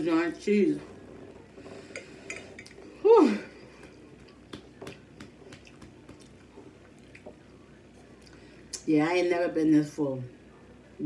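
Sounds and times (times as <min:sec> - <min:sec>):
chewing food: 0:03.8 - 0:08.4
mouth clicks and smacks: 0:04.2 - 0:07.2.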